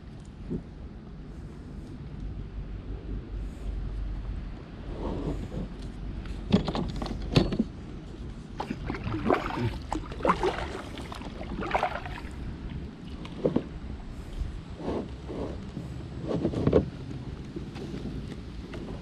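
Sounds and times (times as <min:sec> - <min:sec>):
wind rumble on microphone: 0:00.0 - 0:19.0
paddle splashing in water: 0:08.6 - 0:13.8.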